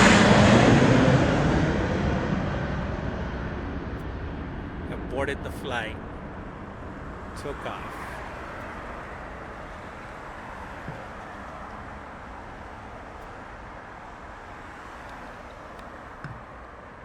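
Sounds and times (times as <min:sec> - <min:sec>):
jet engine rush: 0:00.0 - 0:17.0
small knock: 0:16.2 - 0:16.5.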